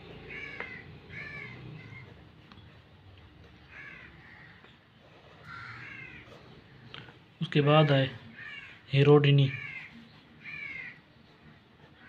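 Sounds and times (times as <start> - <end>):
bird calling: 0.0 - 2.7, 5.4 - 11.1.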